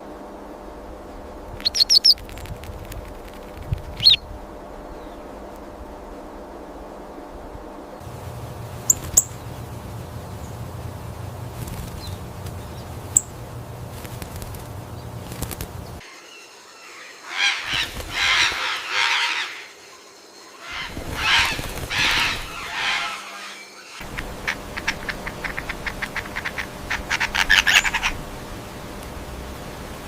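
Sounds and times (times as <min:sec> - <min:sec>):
background hiss: 0:00.0 - 0:30.0
bird squawking: 0:01.6 - 0:02.2, 0:15.8 - 0:19.8, 0:20.6 - 0:28.3
wings flapping: 0:01.6 - 0:04.2, 0:08.0 - 0:16.0, 0:17.4 - 0:19.6, 0:20.6 - 0:29.2.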